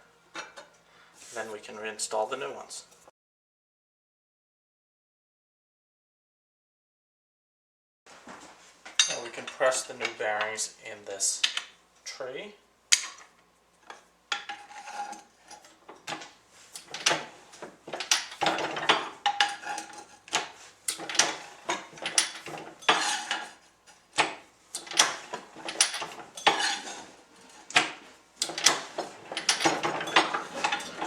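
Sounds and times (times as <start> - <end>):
metal clinks and clanks: 20.9 - 23.6, 24.8 - 27.6, 28.4 - 31.0.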